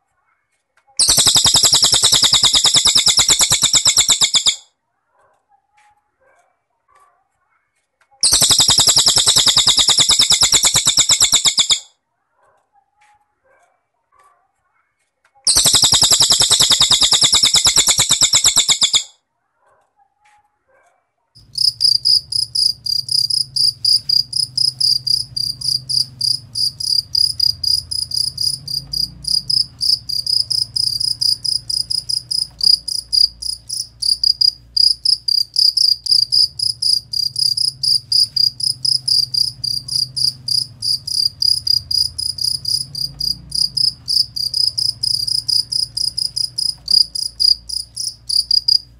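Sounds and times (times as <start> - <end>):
bird high trill: 1.0 - 4.6, 8.2 - 11.9, 15.5 - 19.1, 21.4 - 48.9
cricket chirping: 1.0 - 4.6, 8.2 - 11.8, 15.5 - 19.1, 21.4 - 48.9
faint low hum: 21.4 - 48.9.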